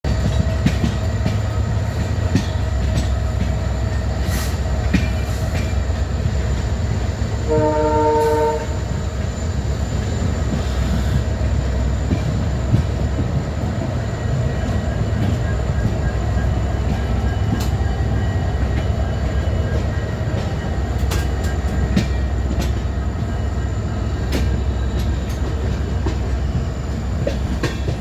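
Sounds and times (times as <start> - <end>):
locomotive engines rumbling: 0.0 - 28.0
locomotive horn blast: 7.5 - 8.8.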